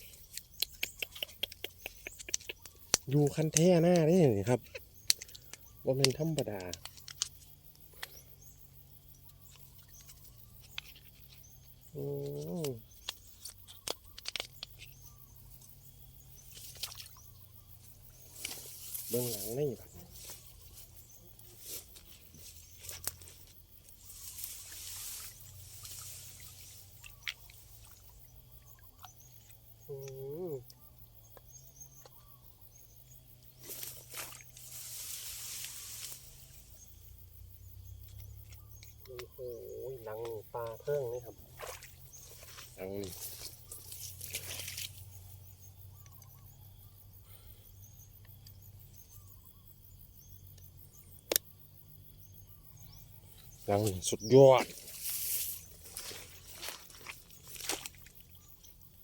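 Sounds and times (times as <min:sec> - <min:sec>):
faint short chirping calls: 0:00.0 - 0:59.0
water trickling and splashing: 0:09.1 - 0:30.2, 0:33.5 - 0:45.4, 0:53.6 - 0:59.0
rustling: 0:33.6 - 0:36.8
sharp click: 0:51.3 - 0:51.5.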